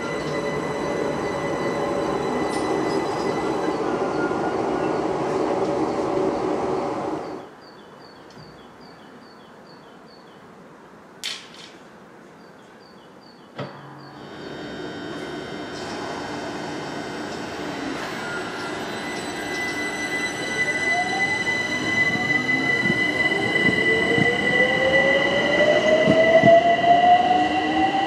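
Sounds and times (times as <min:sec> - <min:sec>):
steady whine: 0:00.0 - 0:07.4, 0:14.2 - 0:28.0
train passing platform: 0:00.0 - 0:09.7, 0:13.8 - 0:28.0.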